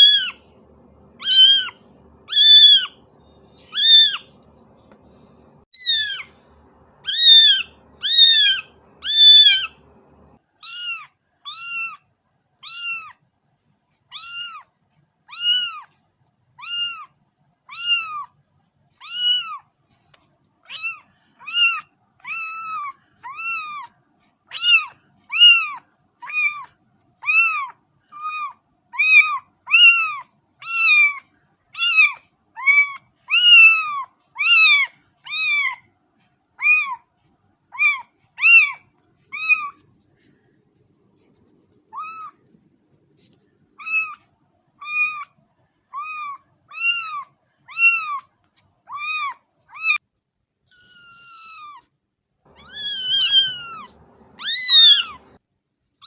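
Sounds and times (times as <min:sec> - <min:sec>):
cat meowing: 0:00.0 - 0:00.4, 0:01.1 - 0:03.0, 0:03.6 - 0:04.4, 0:05.8 - 0:09.9, 0:10.6 - 0:12.0, 0:12.6 - 0:13.2, 0:14.1 - 0:14.7, 0:15.3 - 0:15.9, 0:16.6 - 0:17.1, 0:17.7 - 0:18.3, 0:19.0 - 0:19.6, 0:20.6 - 0:23.9, 0:24.5 - 0:31.2, 0:31.8 - 0:35.8, 0:36.6 - 0:37.0, 0:37.7 - 0:39.8, 0:41.9 - 0:42.4, 0:43.8 - 0:44.2, 0:44.8 - 0:45.3, 0:46.0 - 0:48.3, 0:48.9 - 0:50.0, 0:50.7 - 0:51.8, 0:52.5 - 0:55.4.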